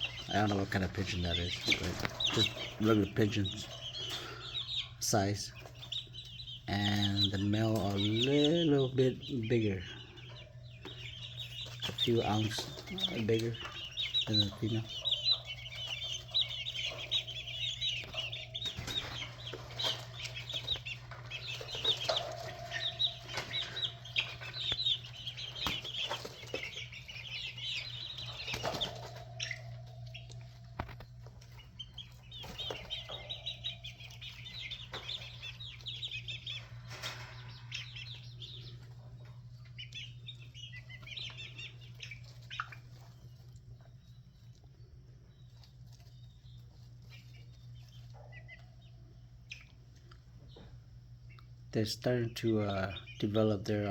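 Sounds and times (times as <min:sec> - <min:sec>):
chicks peeping: 0:00.0 - 0:53.9
steady low hum: 0:00.0 - 0:53.9
scratching: 0:09.8 - 0:43.7.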